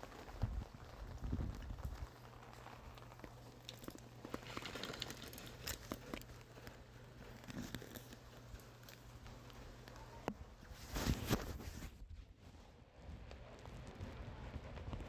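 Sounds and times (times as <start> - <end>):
light rain: 0.0 - 10.4
raindrops ticking on surfaces: 0.0 - 10.4.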